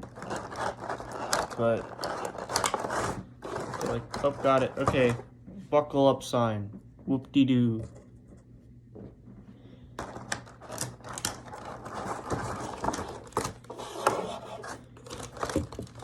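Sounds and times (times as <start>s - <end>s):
plastic packaging rustling and clicking: 0.0s - 5.3s, 10.0s - 16.0s.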